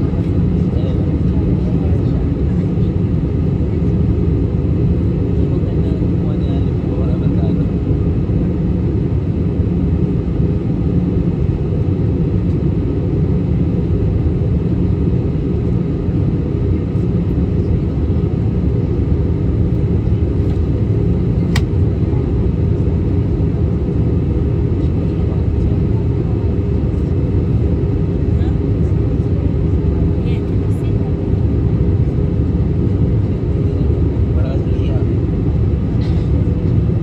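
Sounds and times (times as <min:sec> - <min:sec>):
airliner cabin engine rumble: 0:00.0 - 0:37.0.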